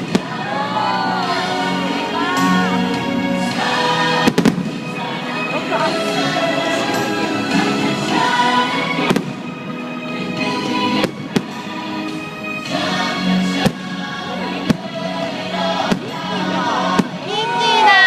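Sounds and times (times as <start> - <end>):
firework bangs: 0.0 - 0.5, 3.9 - 5.2, 9.0 - 9.6, 10.8 - 12.3, 13.4 - 18.0
music playing: 0.0 - 18.0.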